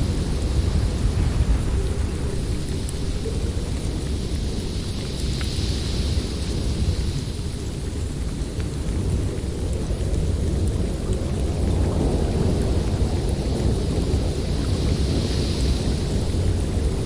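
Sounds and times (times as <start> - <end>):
snowstorm wind blowing: 0.0 - 17.0.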